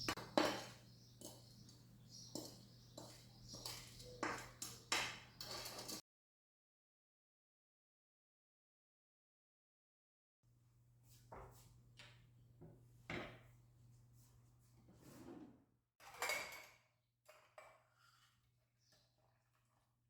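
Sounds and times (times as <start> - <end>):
dishes and utensils clinking: 0.0 - 6.0, 16.0 - 17.8.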